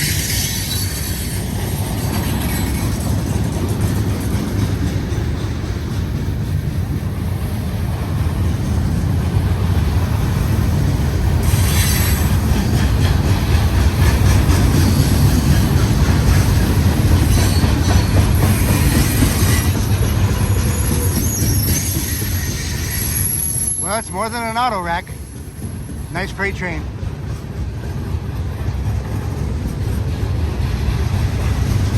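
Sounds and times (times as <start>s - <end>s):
freight train rumbling past: 0.0s - 31.9s
high-pitched wheel squeal: 20.4s - 24.0s.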